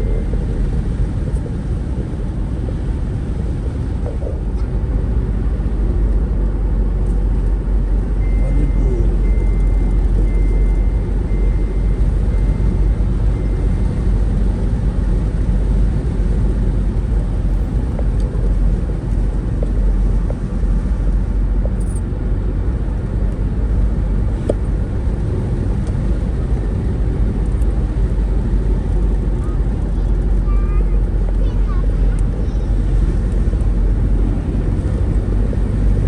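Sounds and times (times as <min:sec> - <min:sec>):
vehicle rumble: 0:00.0 - 0:36.0
short high beeps: 0:08.2 - 0:12.8.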